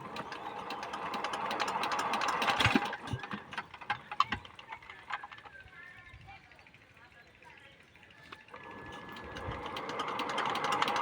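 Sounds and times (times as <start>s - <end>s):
diesel pump engine knocking: 0.0s - 5.5s, 8.6s - 11.0s.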